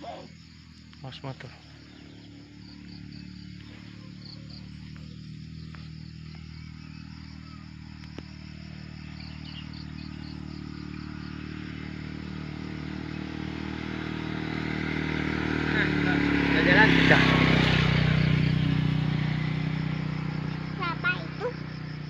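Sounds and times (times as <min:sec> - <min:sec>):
insects chirping: 0:00.0 - 0:22.0
vehicle engine running: 0:00.0 - 0:22.0.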